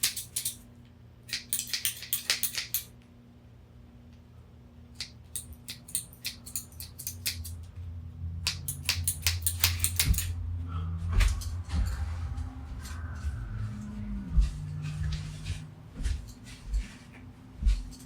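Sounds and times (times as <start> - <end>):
low hum: 7.4 - 18.0.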